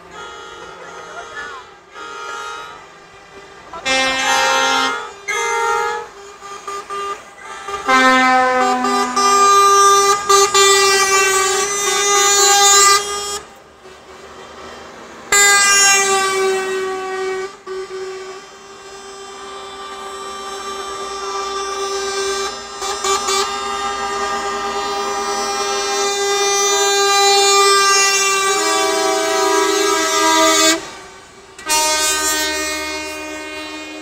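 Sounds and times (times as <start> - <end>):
truck air horns blowing: 0.0 - 34.0.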